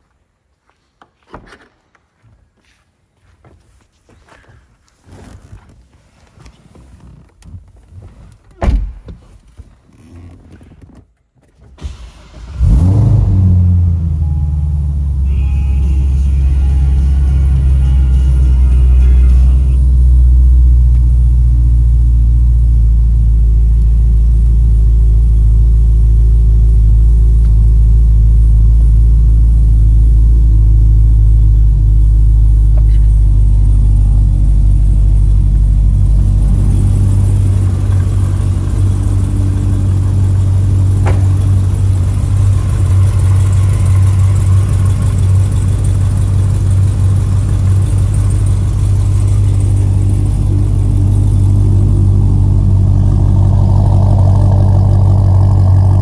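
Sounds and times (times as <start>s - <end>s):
car engine idling: 11.8s - 56.0s
engine hiss and whine: 11.8s - 56.0s.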